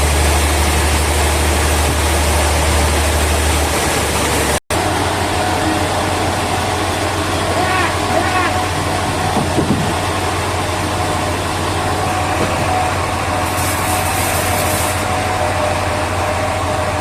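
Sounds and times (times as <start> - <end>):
sawmill machinery humming: 0.0 - 17.0
burst of hiss: 13.4 - 15.1.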